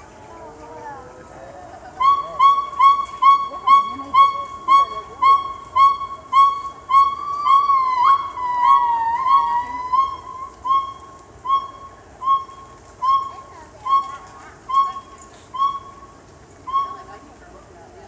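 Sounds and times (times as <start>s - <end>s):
gibbons hooting: 1.8s - 16.1s
gibbons sliding wavering calls: 1.9s - 17.3s.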